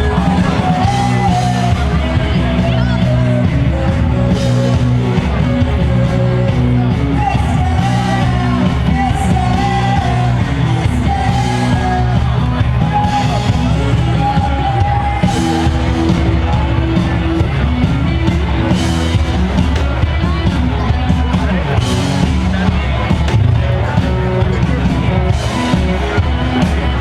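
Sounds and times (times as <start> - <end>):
person singing: 0.0 - 18.8
rock band playing: 0.0 - 27.0.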